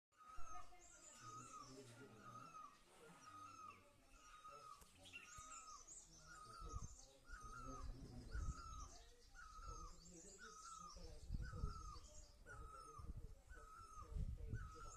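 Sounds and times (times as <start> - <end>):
faint bird chirps: 0.1 - 14.9
low rumbles on microphone: 10.9 - 14.9.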